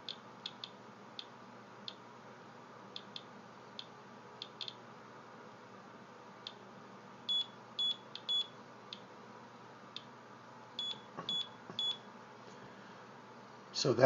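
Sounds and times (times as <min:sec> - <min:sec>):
geiger counter clicking: 0:00.0 - 0:01.3.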